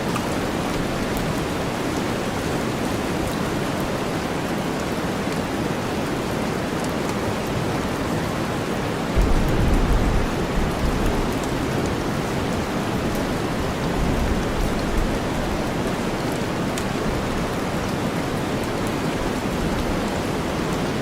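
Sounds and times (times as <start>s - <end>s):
steady rain: 0.0s - 21.0s
deep white noise: 9.2s - 13.1s.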